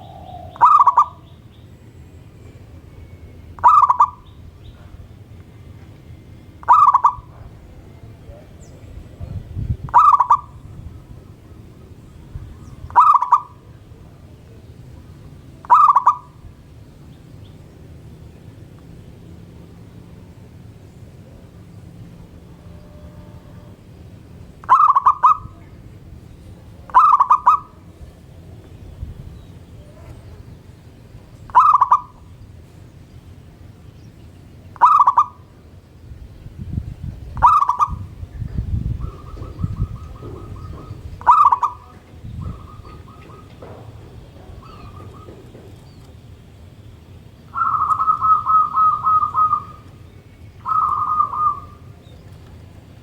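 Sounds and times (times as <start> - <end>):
dove cooing: 0.0 - 1.5, 3.5 - 5.0, 6.6 - 14.2, 15.2 - 16.5, 24.6 - 25.8, 26.5 - 28.1, 31.5 - 32.3, 34.8 - 35.6, 37.4 - 46.0, 47.5 - 52.8
low background rumble: 0.0 - 53.0
bird calling fast even notes: 47.5 - 51.9.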